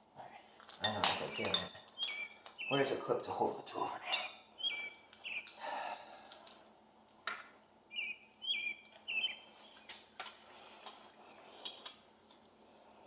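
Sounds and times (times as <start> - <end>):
small bird chirping: 1.2 - 3.1, 4.1 - 5.6, 7.9 - 10.1.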